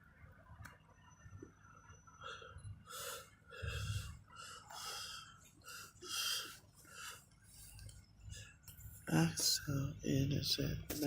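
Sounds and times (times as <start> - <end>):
person breathing out: 2.3 - 7.2.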